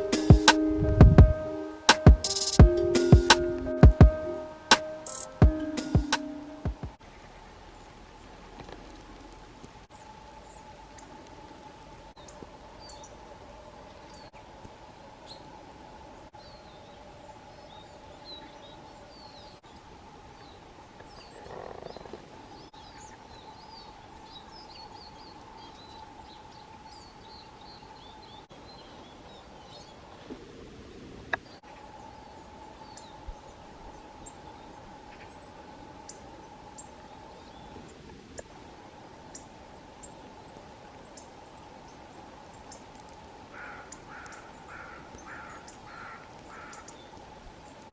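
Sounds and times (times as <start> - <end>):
sharp clicks: 4.7 - 5.4
songbirds chirping: 9.9 - 14.5, 15.2 - 30.1, 31.3 - 47.9.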